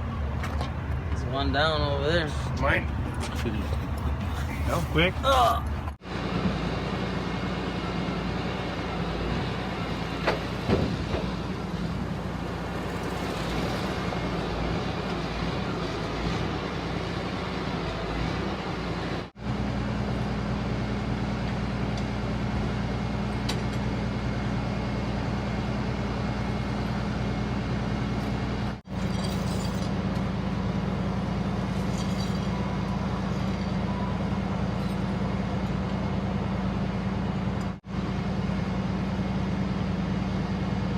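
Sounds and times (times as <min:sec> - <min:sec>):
vehicle engine idling: 0:00.0 - 0:06.0.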